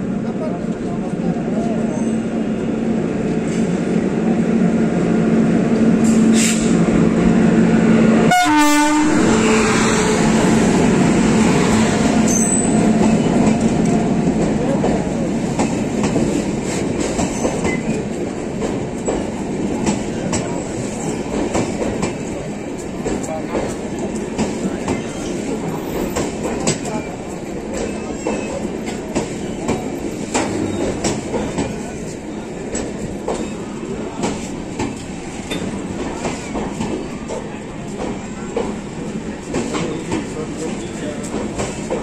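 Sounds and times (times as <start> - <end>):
locomotive horn: 8.3 - 10.3
train wheels clacking over rail joints: 10.2 - 42.0.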